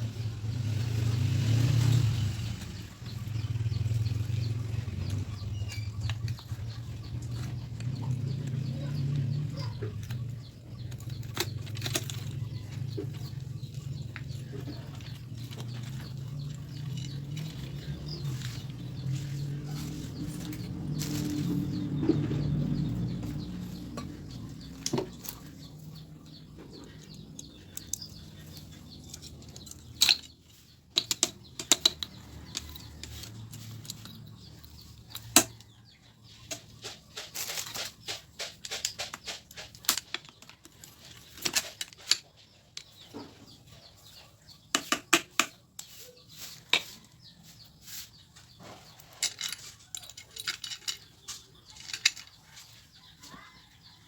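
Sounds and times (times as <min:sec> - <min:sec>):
metallic clicks of hand tools: 0:27.4 - 0:35.6.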